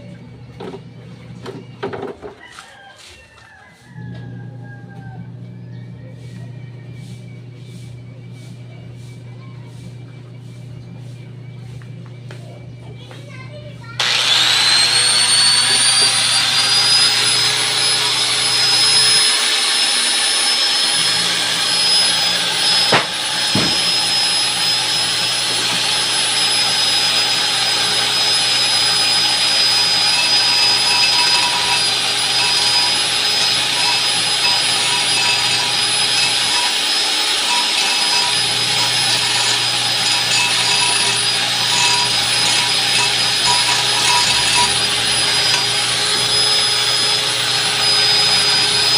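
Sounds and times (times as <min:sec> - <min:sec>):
power tool motor whine: 0:14.0 - 0:48.9.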